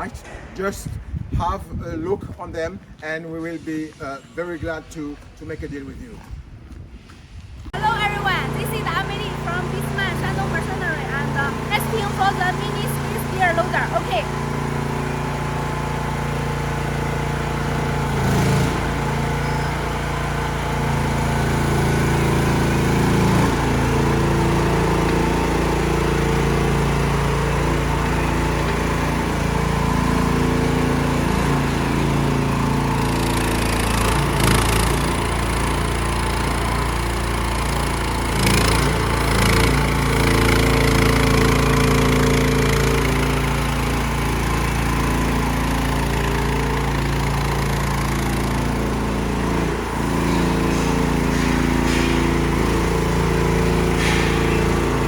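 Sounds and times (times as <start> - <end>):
skid steer loader engine running: 7.7 - 55.0.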